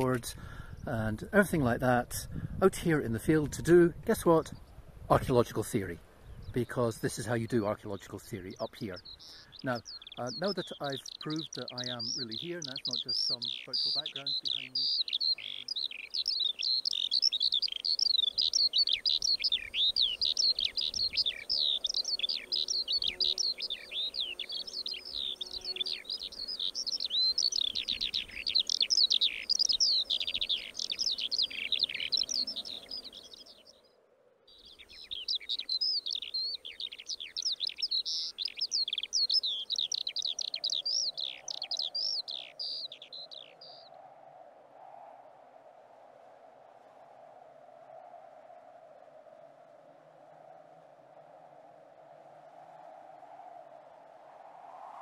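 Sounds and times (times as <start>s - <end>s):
skylark singing: 6.4s - 33.8s, 34.6s - 43.9s.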